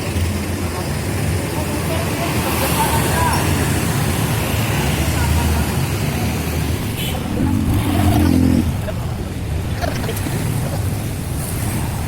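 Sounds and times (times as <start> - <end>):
bus engine rumbling: 3.8 - 12.0.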